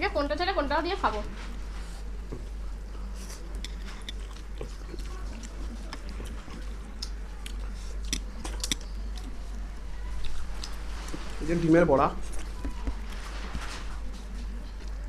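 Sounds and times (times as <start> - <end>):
chewing and biting: 2.0 - 11.3.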